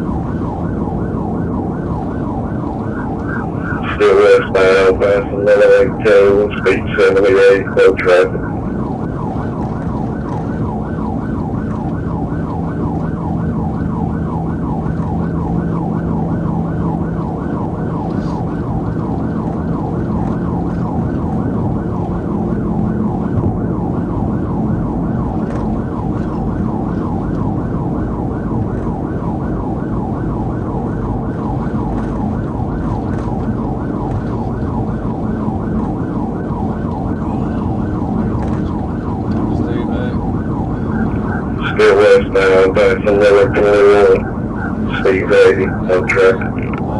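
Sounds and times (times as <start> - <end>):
car engine: 0.0 - 46.9
police siren yelping: 0.0 - 46.9
road noise: 0.0 - 46.9.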